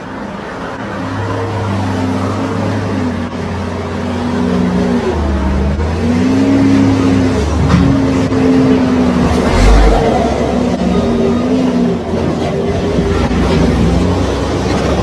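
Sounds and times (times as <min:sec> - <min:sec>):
road noise: 0:00.0 - 0:15.0
car engine revving: 0:05.8 - 0:13.9.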